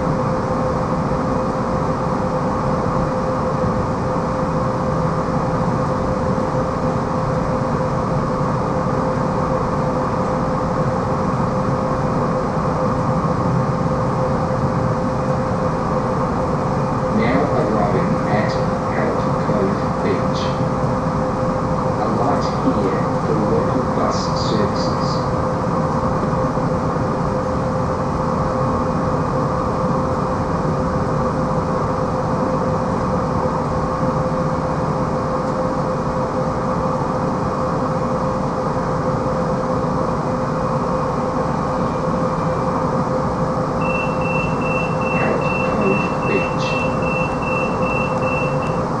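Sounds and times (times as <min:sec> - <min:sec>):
train wheels rumbling on rail: 0:00.0 - 0:43.8
constant humming tone: 0:00.0 - 0:49.0
high steady tone: 0:43.8 - 0:49.0.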